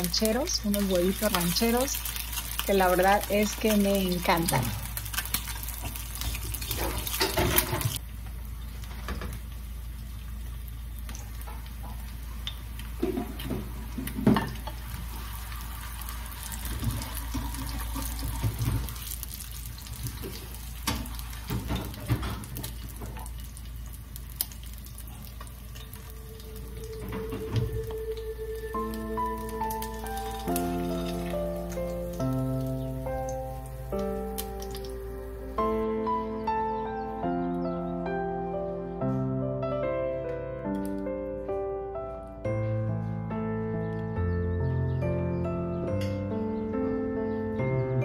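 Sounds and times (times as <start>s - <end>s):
food sizzling in oil: 0.0s - 8.0s, 10.0s - 35.1s.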